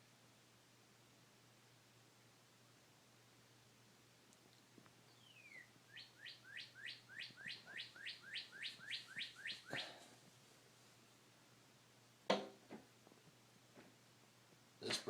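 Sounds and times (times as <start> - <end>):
bird singing falling notes: 5.1 - 9.9.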